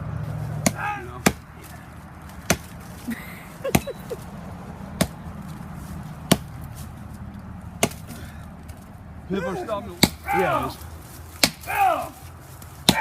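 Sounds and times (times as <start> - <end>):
axe chopping into tree trunk: 0.5 - 2.8, 3.7 - 4.0, 5.0 - 5.2, 6.2 - 6.6, 7.8 - 8.8, 10.0 - 10.6, 11.4 - 12.0.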